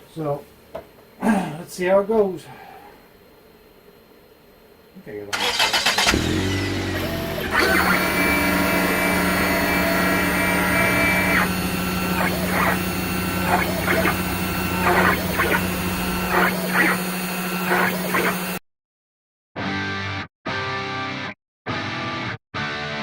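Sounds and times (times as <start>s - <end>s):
stepper motors whining: 5.4s - 18.6s
spindle motor hum: 5.9s - 18.6s.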